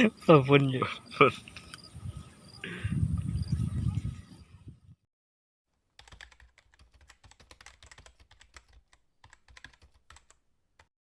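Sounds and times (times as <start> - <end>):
faint rapid clicking: 6.0 - 10.9.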